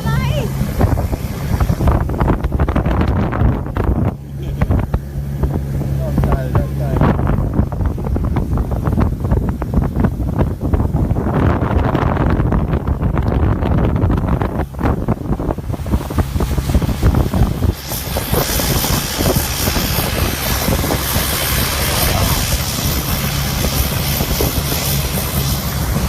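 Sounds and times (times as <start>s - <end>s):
motorboat engine running: 0.0s - 26.0s
wind buffeting microphone: 0.0s - 26.0s
rushing hiss of water: 15.6s - 26.0s.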